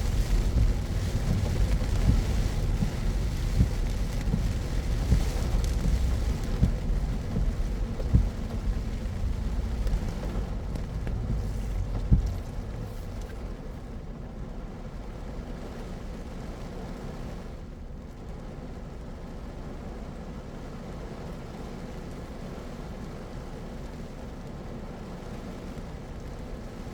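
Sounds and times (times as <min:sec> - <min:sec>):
car thumps: 0:00.0 - 0:13.7
road and tyre noise: 0:00.0 - 0:26.9.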